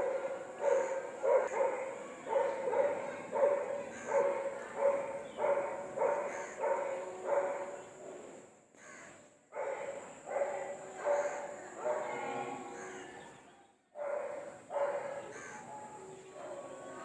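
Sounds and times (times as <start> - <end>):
dog barking: 0.0 - 7.8, 9.6 - 12.2, 14.0 - 16.8.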